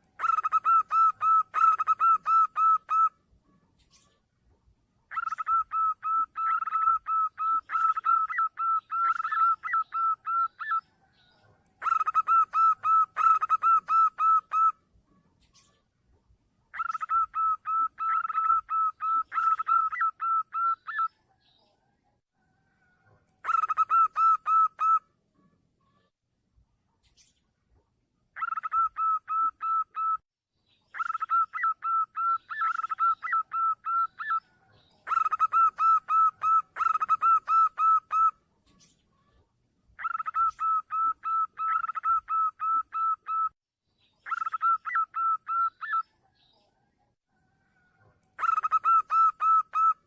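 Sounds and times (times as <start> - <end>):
dove cooing: 0.2 - 3.1, 5.1 - 10.8, 11.8 - 14.8, 16.7 - 21.1, 23.4 - 25.0, 28.4 - 30.2, 31.0 - 38.4, 40.0 - 43.5, 47.8 - 50.0.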